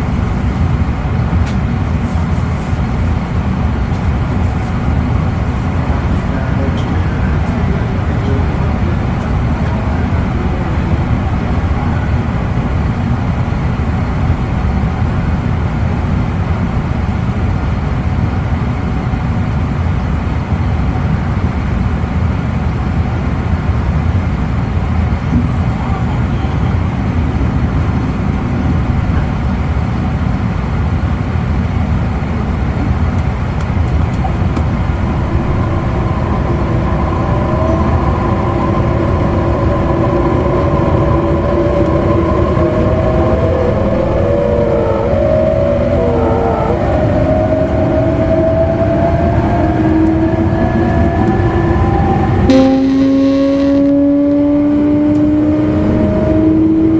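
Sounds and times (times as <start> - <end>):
train wheels rumbling on rails: 0.0 - 54.3
whining tones rising in pitch: 33.7 - 56.9.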